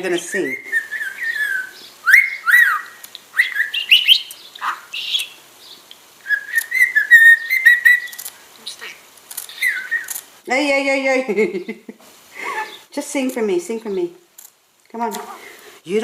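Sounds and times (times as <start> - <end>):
budgerigar chirping and warbling: 0.1 - 5.4, 6.3 - 10.1.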